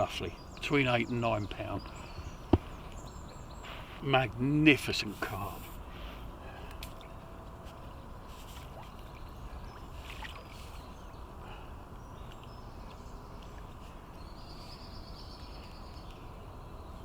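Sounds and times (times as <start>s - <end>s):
water sloshing and lapping: 5.2s - 16.3s.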